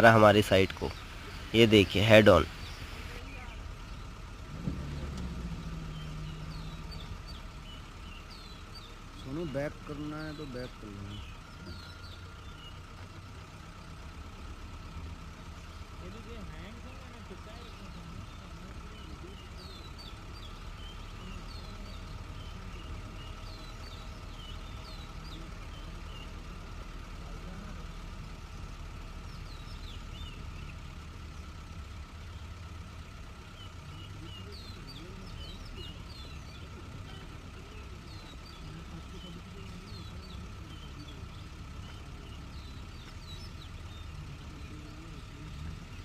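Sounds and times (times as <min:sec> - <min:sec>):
birds chirping: 0:00.0 - 0:46.0
vehicle engine idling: 0:00.0 - 0:46.0
high bird chirps: 0:05.5 - 0:13.1, 0:17.6 - 0:27.3.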